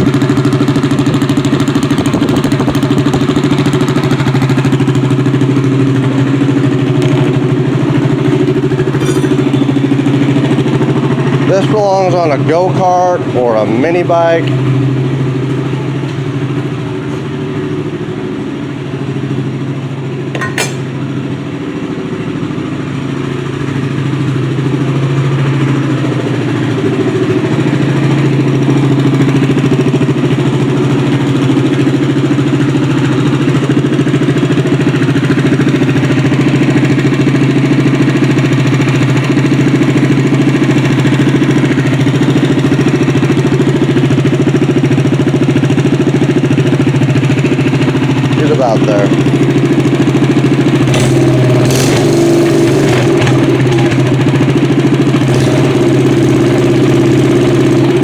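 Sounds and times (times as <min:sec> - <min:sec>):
small unmuffled boat engine running: 0:00.0 - 0:18.6, 0:45.4 - 0:58.0.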